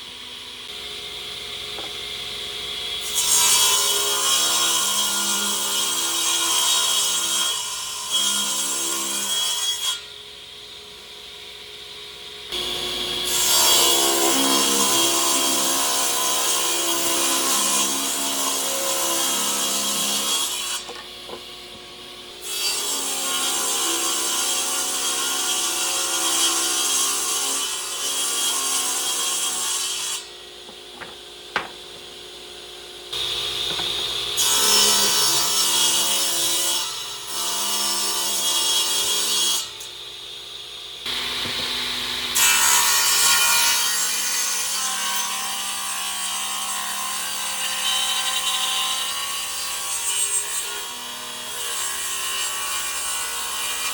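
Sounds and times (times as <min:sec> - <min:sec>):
power tool grinding wood: 0:12.5 - 0:32.2, 0:33.1 - 0:36.7.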